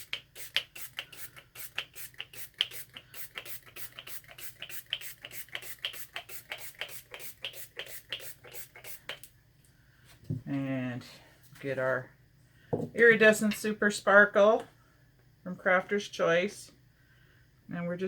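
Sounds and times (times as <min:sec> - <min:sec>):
spray bottle spritzing: 0:00.0 - 0:09.3.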